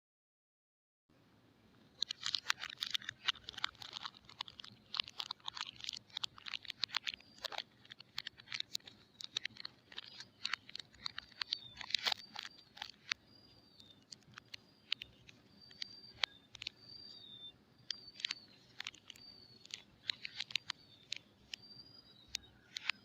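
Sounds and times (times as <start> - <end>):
packaging crinkling: 2.0 - 13.2, 17.9 - 21.2.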